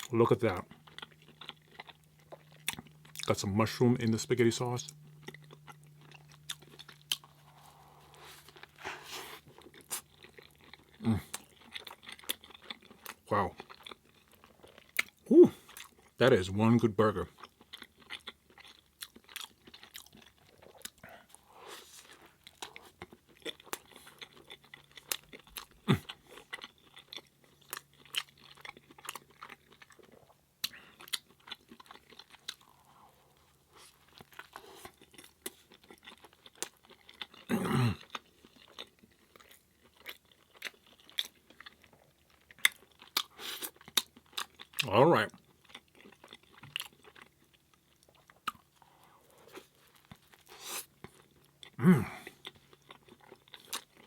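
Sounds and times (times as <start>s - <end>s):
close-miked chewing: 0.0s - 16.2s, 17.1s - 54.0s
low vocal sound: 15.3s - 15.6s, 51.8s - 52.3s.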